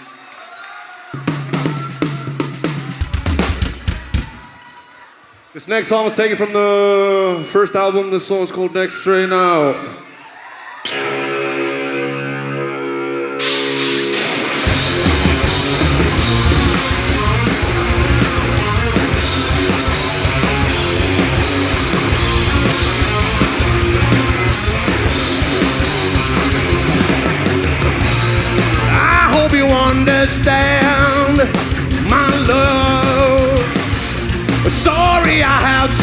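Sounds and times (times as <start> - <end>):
bass and drums: 1.2 - 4.5, 13.4 - 36.0
distorted electric guitars: 10.8 - 36.0
person singing: 28.7 - 33.8, 34.6 - 36.0.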